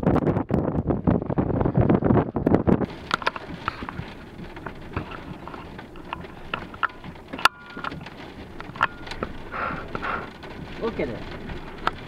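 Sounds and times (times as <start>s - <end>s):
wind buffeting microphone: 0.0s - 12.0s
raindrops tapping hard surface: 2.4s - 12.0s.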